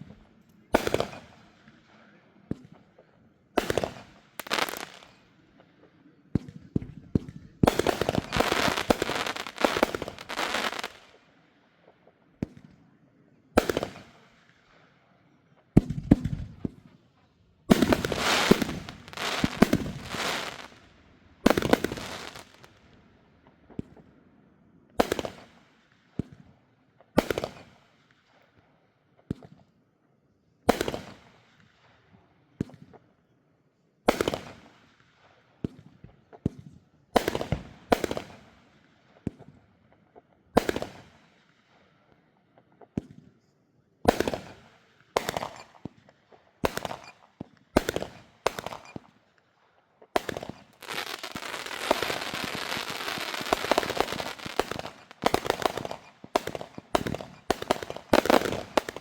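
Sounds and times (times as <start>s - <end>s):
fireworks bangs: 0.0s - 1.8s, 3.6s - 5.2s, 6.3s - 11.2s, 15.8s - 16.9s, 17.7s - 22.9s, 44.0s - 46.0s, 46.6s - 49.2s, 50.1s - 59.0s
rapid fireworks pops: 0.0s - 12.8s, 13.6s - 14.8s, 15.6s - 24.2s, 25.0s - 28.6s, 29.2s - 29.7s, 30.7s - 31.8s, 32.6s - 33.1s, 34.1s - 35.0s, 35.6s - 41.6s, 42.6s - 43.4s, 44.0s - 49.4s, 50.0s - 59.0s.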